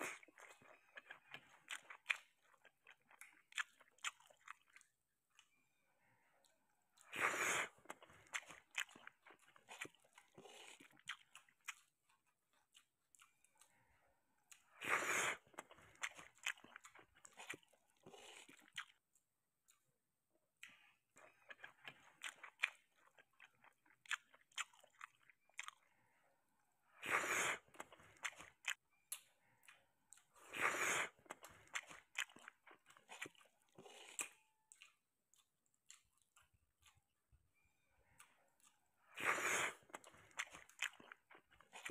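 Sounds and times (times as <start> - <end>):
person chewing wetly: 0.0 - 41.9
noisy bites or slurps: 7.0 - 11.8, 14.6 - 19.0, 26.9 - 28.8, 30.4 - 34.4, 39.0 - 41.9.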